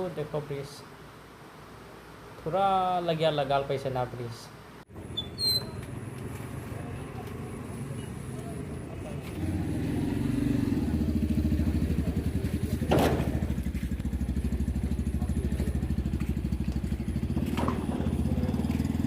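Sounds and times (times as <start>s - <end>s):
small engine running: 9.3s - 19.0s.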